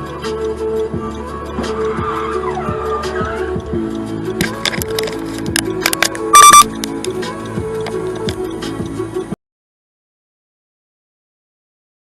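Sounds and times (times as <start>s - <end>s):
background music with beat: 0.0s - 9.4s
car tyres squealing: 1.5s - 3.7s.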